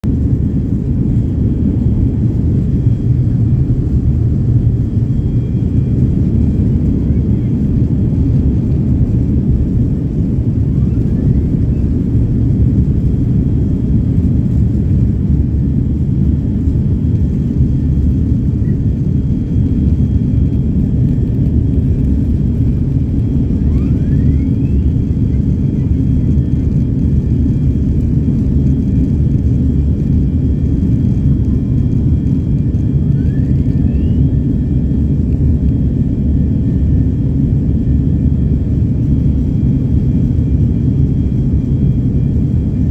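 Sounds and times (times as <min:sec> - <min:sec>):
jet airliner cabin rumble: 0:00.0 - 0:42.9
faint rising whistle: 0:23.6 - 0:24.9, 0:33.0 - 0:34.5.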